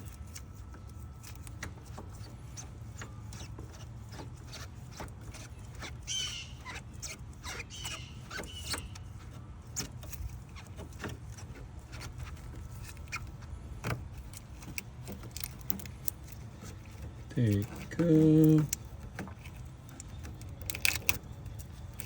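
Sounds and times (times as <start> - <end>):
rubber hose squeaking: 0.0 - 22.0
handling clicks and knocks: 9.8 - 22.0.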